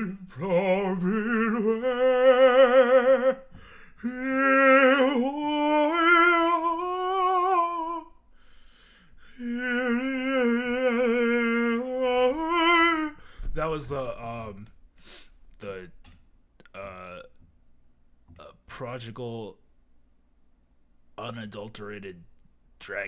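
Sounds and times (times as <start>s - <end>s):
person singing wordless notes: 0.0s - 8.2s, 9.3s - 14.7s
breaths: 3.5s - 4.1s, 8.3s - 9.4s, 13.2s - 13.6s, 15.0s - 15.5s.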